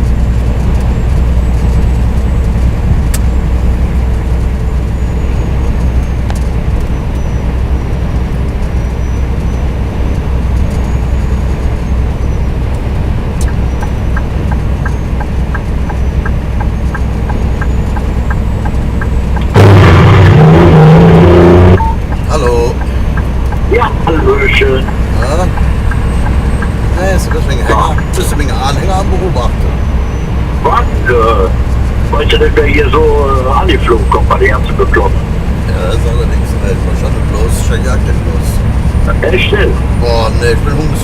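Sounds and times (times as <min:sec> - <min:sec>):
truck engine and road drone: 0:00.0 - 0:41.0
light regular ticking: 0:10.1 - 0:19.6, 0:21.8 - 0:29.0
loud low-pitched sound: 0:19.4 - 0:21.9.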